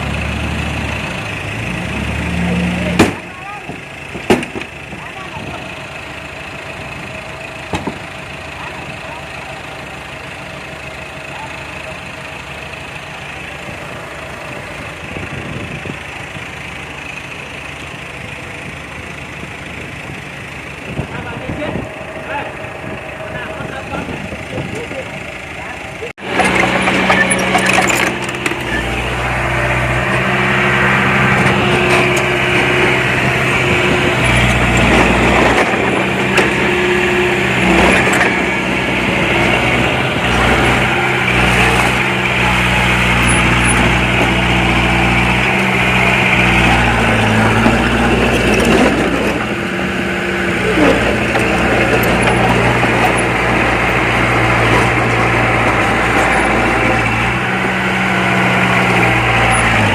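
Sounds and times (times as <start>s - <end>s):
diesel engine under changing load: 0.0s - 59.9s.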